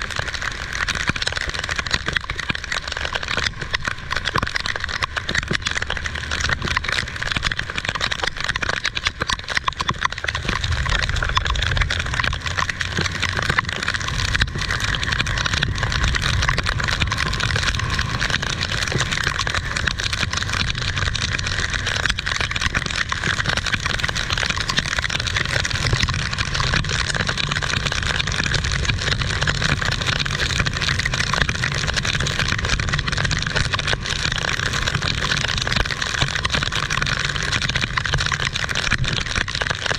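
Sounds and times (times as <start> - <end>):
heavy rain falling: 0.0 - 39.9
low rumble: 10.1 - 35.7.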